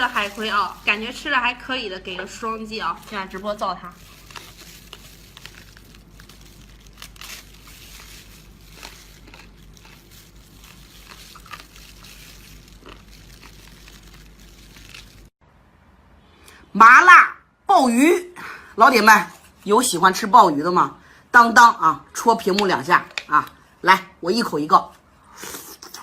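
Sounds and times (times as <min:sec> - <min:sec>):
low steady hum: 0:00.0 - 0:16.6
chewing and crunching: 0:03.0 - 0:15.3.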